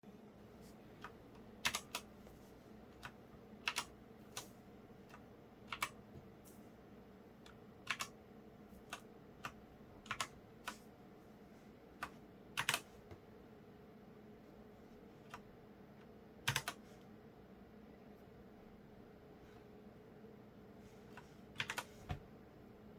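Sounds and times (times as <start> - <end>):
faint steady hum: 0.1 - 22.9.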